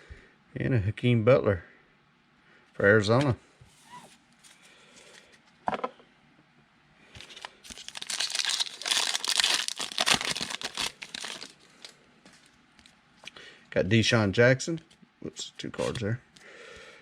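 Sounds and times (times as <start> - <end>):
foil wrapper crinkling: 7.2 - 12.6.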